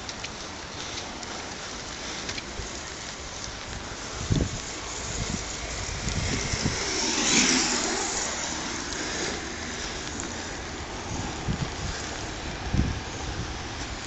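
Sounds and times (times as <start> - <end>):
rain hissing on wet track: 0.0 - 14.0
wind buffeting microphone: 0.0 - 14.0
vehicle passing close: 4.8 - 13.8.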